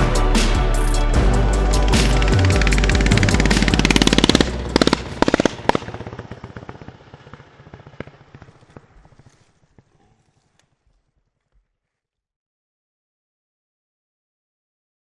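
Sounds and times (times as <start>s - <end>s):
music: 0.0s - 5.5s
exhaust popping: 0.0s - 9.2s
mini bike engine running: 5.2s - 9.9s.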